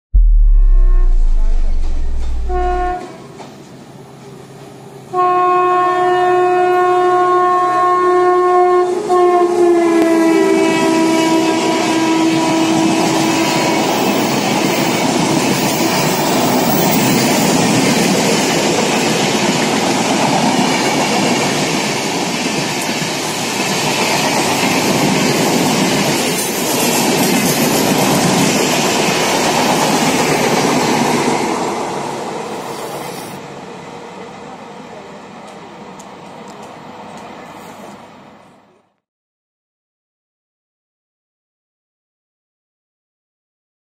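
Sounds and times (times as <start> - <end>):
locomotive horn blast: 0.2 - 3.0, 5.1 - 13.6
train wheels on rails: 12.3 - 33.9, 35.0 - 38.2.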